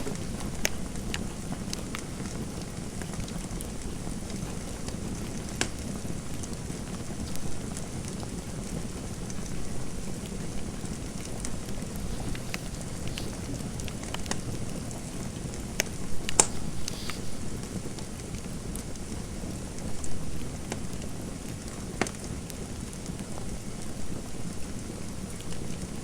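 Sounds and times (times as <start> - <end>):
wood fire crackling and popping: 0.0 - 19.8.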